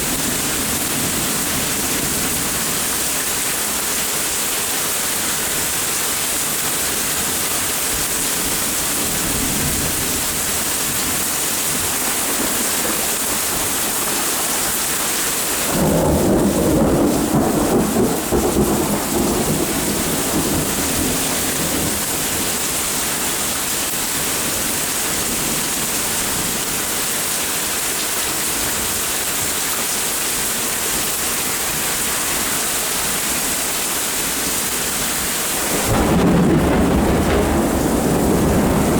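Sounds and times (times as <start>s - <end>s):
steady rain: 0.0s - 38.9s
thunder rumbling: 8.0s - 25.6s, 35.6s - 38.9s.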